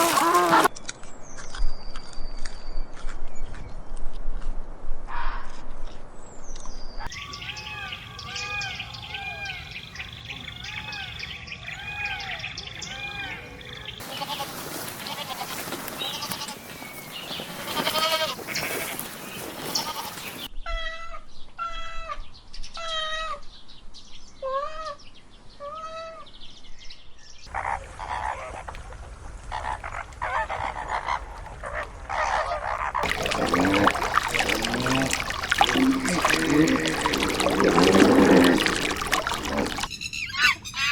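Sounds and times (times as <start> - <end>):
young farm animal bleating: 14.0 - 16.7, 17.6 - 19.1, 19.7 - 20.4
rustling: 14.0 - 20.5.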